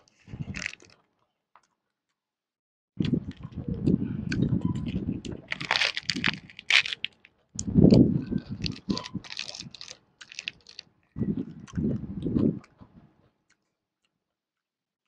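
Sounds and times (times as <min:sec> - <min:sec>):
crunching crispy pancake: 0:05.5 - 0:07.3, 0:07.9 - 0:10.8.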